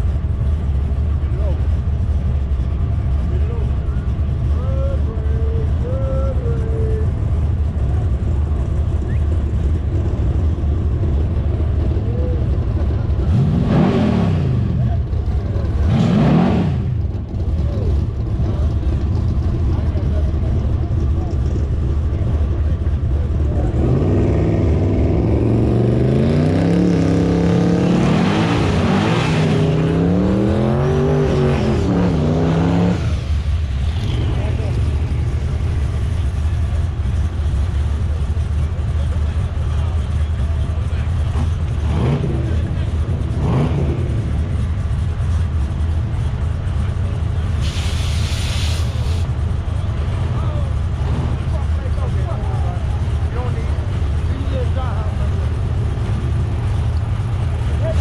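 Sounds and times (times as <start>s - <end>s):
drag cars accelerating: 6.4s - 58.0s
burst of hiss: 47.6s - 49.2s.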